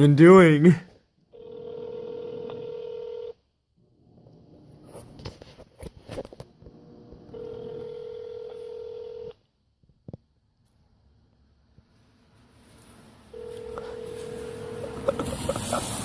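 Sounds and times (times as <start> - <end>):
telephone ringback tone: 1.3 - 3.4, 7.3 - 9.4, 13.3 - 15.2
rustling: 11.8 - 16.0.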